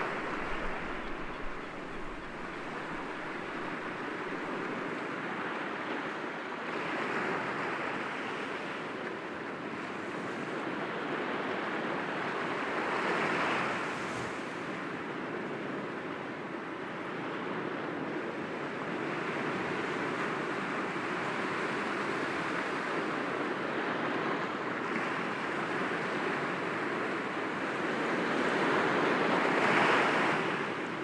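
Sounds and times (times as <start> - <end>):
waves breaking against rocks: 0.0 - 4.5.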